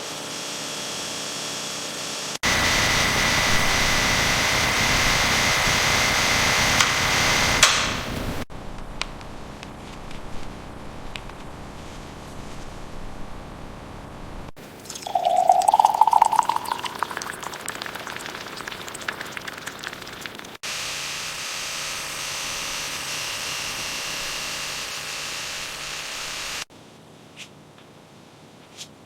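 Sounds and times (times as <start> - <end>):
liquid pouring into container: 14.7 - 20.6.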